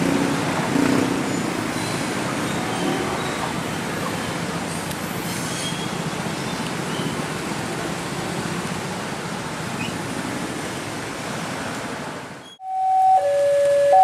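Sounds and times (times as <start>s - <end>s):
high wheel squeals: 1.3s - 4.0s, 4.7s - 7.2s.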